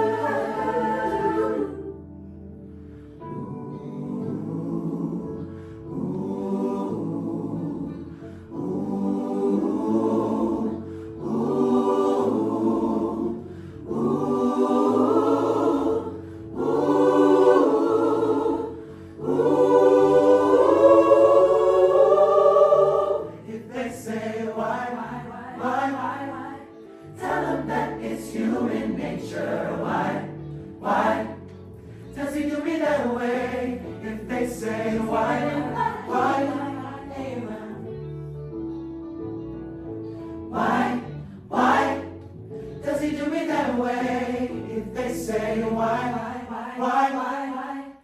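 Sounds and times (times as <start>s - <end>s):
mixed choir singing: 0.0s - 2.1s, 3.2s - 38.1s, 40.4s - 48.0s.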